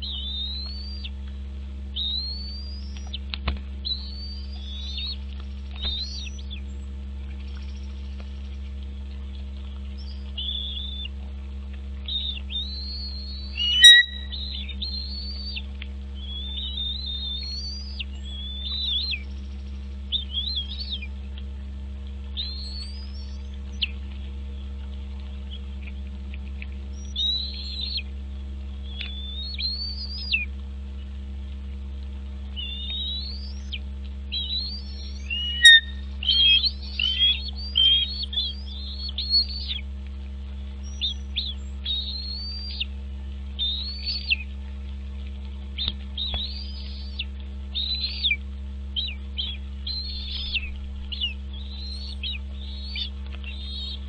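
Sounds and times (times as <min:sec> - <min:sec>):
eagle high whistled calls: 0:00.0 - 0:01.2, 0:02.0 - 0:03.2, 0:03.8 - 0:06.7, 0:10.0 - 0:11.1, 0:12.1 - 0:15.6, 0:16.2 - 0:21.1, 0:22.3 - 0:24.0, 0:26.9 - 0:28.1, 0:28.8 - 0:30.5, 0:32.5 - 0:39.8, 0:40.8 - 0:42.9, 0:43.6 - 0:44.5, 0:45.8 - 0:54.0
low electrical hum: 0:00.0 - 0:54.0.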